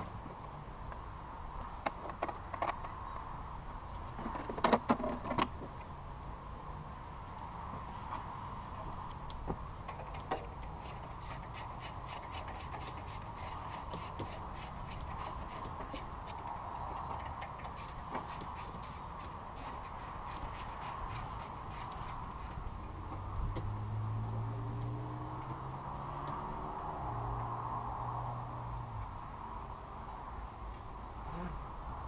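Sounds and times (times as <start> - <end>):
ratchet wrench clicking: 10.3 - 16.5, 17.1 - 22.6.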